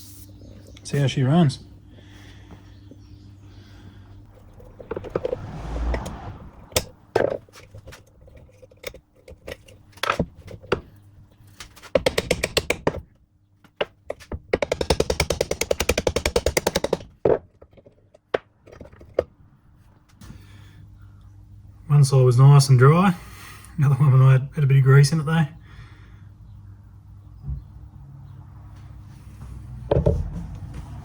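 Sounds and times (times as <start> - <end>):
rapid clicking: 14.1 - 17.2.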